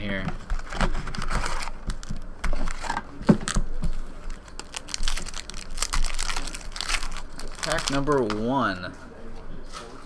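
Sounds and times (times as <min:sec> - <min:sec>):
foil wrapper tearing and crinkling: 0:04.2 - 0:08.5.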